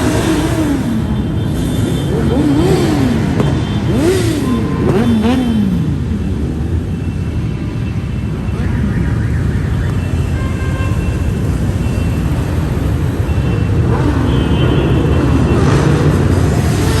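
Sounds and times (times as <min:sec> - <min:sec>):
motorcycles riding past: 0:00.0 - 0:07.0.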